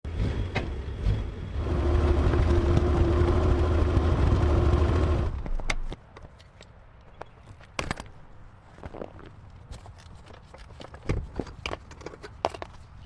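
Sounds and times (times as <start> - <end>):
car engine running: 1.6 - 5.6.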